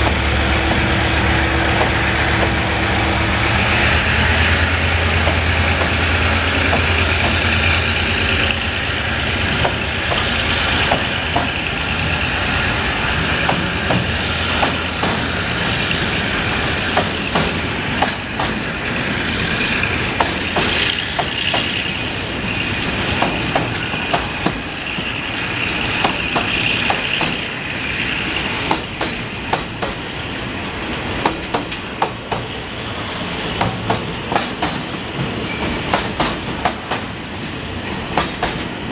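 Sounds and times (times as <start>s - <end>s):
low locomotive hum: 0.0s - 38.9s
train wheels clicking over rail joints: 0.0s - 38.9s
high wheel squeal: 35.4s - 36.0s.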